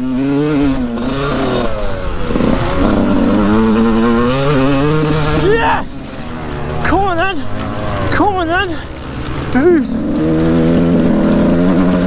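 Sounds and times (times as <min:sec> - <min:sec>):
two-stroke motorcycle engine revving: 0:00.0 - 0:12.0.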